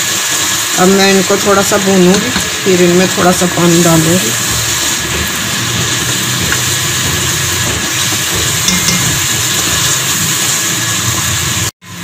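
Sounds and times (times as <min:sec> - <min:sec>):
food sizzling in a pot: 0:00.0 - 0:12.0
spatula stirring: 0:03.6 - 0:11.0.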